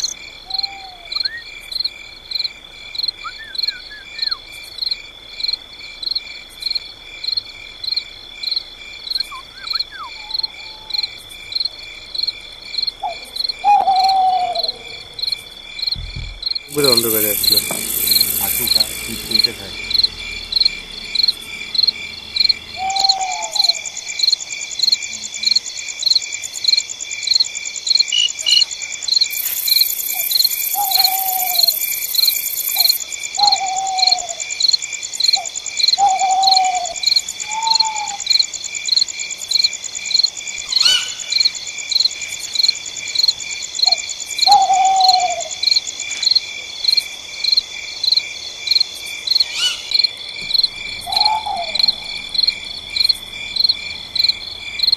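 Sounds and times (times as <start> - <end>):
continuous high insect trill: 0.0 - 54.9
crickets chirping: 0.0 - 54.9
falling animal call: 16.7 - 24.3, 51.0 - 52.2.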